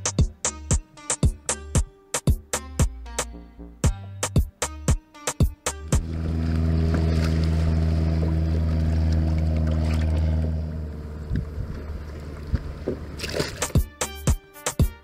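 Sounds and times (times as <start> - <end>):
boat engine drone: 5.7 - 14.3.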